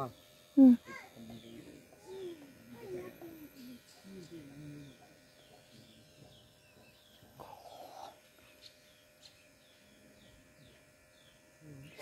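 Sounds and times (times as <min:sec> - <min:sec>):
small bird chirping: 0:00.0 - 0:02.6, 0:03.5 - 0:12.0.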